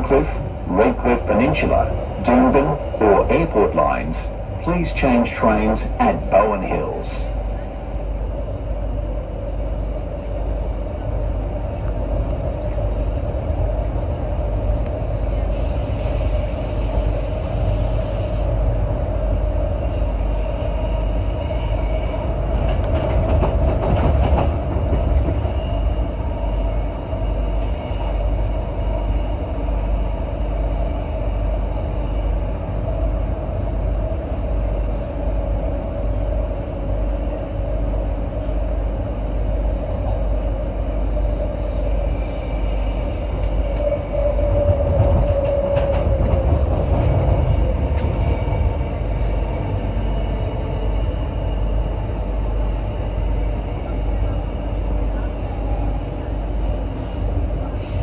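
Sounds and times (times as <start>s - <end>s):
electric train hum: 0.0s - 58.0s
train wheels rumbling on track: 0.0s - 58.0s.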